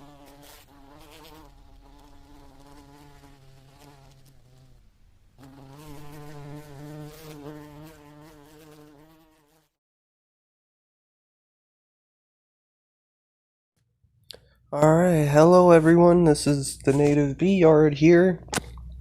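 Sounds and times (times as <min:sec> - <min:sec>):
bees buzzing: 0:00.0 - 0:04.8, 0:05.4 - 0:09.6.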